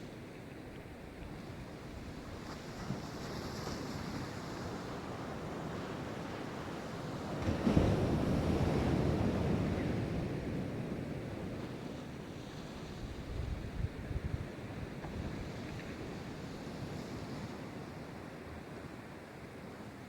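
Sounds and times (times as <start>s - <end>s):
wind on microphone: 12.7s - 17.5s.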